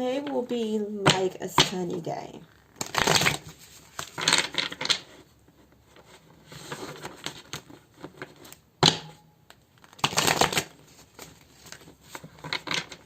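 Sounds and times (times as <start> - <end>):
cards riffling: 2.8 - 5.0, 9.8 - 13.0.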